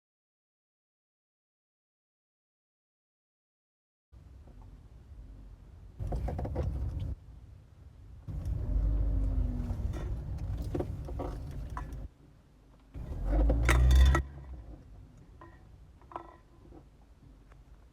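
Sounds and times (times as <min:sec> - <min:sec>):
car suspension creaking and rattling: 0:06.0 - 0:07.2, 0:08.3 - 0:12.1, 0:12.9 - 0:17.6.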